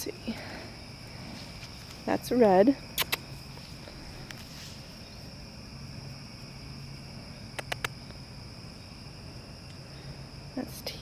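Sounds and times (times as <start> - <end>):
faint low hum: 0.0 - 11.0
high-pitched insect chorus: 0.0 - 11.0
short sharp clicks: 7.6 - 8.0.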